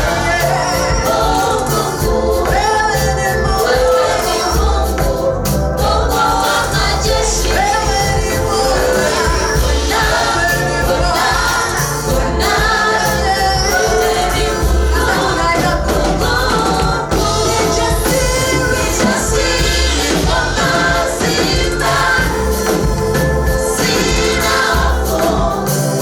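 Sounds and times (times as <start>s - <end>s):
band playing with strong bass: 0.0s - 26.0s
choir singing gospel music: 0.0s - 26.0s.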